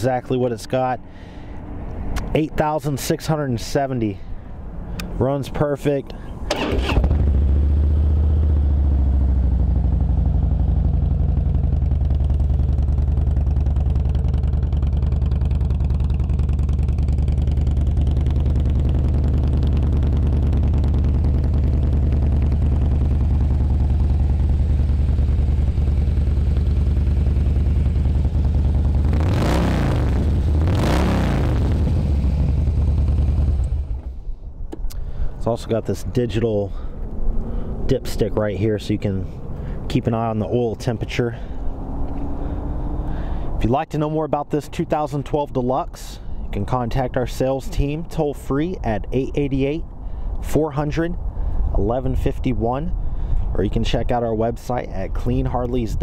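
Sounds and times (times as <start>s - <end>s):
motorcycle engine idling and revving: 6.4s - 34.3s, 37.0s - 43.2s.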